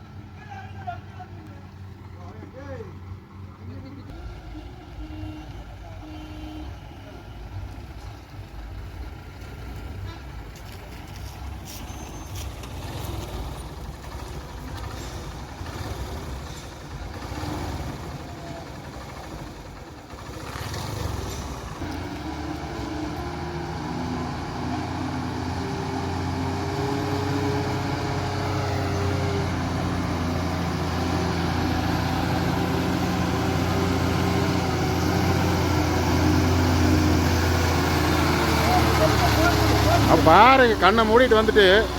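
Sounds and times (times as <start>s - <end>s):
traffic noise: 0.0s - 41.9s
truck diesel engine under load: 0.0s - 41.9s.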